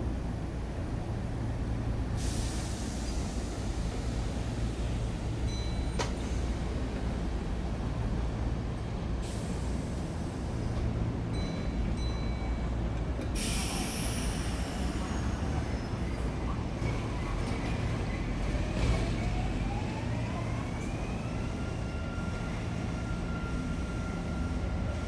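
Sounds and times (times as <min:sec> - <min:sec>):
air brakes hissing: 0:02.2 - 0:06.6, 0:09.2 - 0:10.6, 0:13.3 - 0:18.1.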